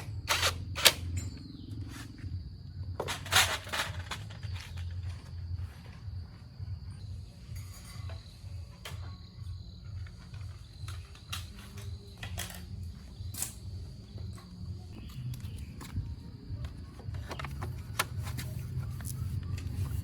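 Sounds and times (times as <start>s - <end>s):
machine throbbing rumble: 0.0s - 7.6s.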